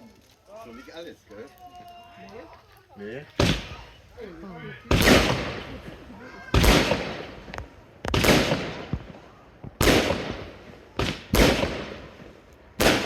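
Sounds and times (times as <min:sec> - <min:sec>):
firework bangs: 0:03.4 - 0:04.2, 0:04.8 - 0:13.0.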